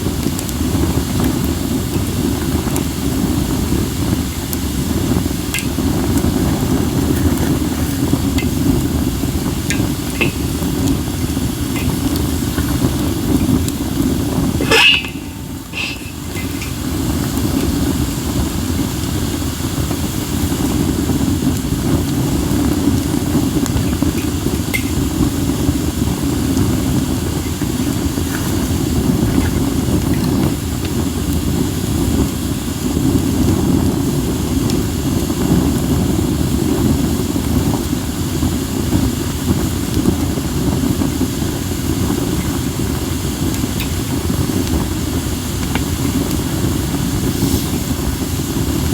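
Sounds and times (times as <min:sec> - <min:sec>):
wind rumble on microphone: 0:00.0 - 0:48.9
wood fire crackling: 0:00.0 - 0:48.9.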